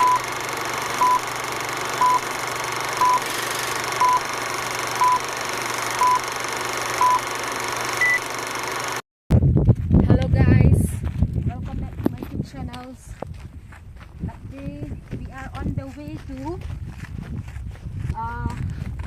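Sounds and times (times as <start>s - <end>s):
higher-pitched beep: 0.0s - 0.2s, 2.0s - 2.2s, 3.0s - 3.2s, 4.0s - 4.2s, 5.0s - 5.2s, 6.0s - 6.2s, 7.0s - 7.3s, 8.0s - 8.2s
short beeps: 0.0s - 0.2s, 1.0s - 1.2s, 2.0s - 2.2s, 3.0s - 3.2s, 4.0s - 4.3s, 5.0s - 5.2s, 6.0s - 6.2s, 7.0s - 7.3s, 8.0s - 8.2s.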